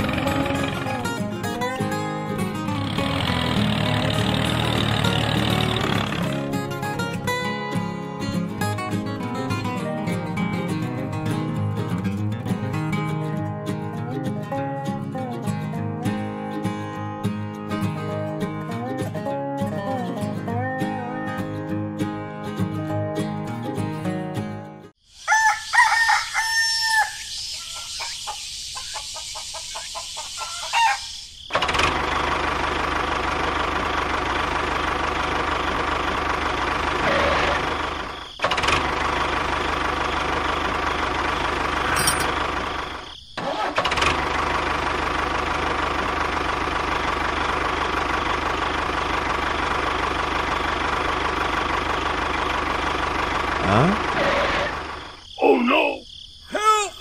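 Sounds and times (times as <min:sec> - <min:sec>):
small engine running: 0:00.0 - 0:08.1, 0:31.5 - 0:55.1
rooster crowing: 0:25.2 - 0:28.4, 0:30.3 - 0:31.2.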